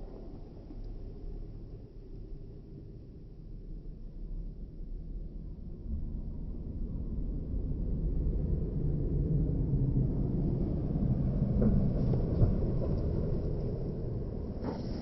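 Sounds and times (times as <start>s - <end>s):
car engine exhaust rumble: 12.6s - 15.0s.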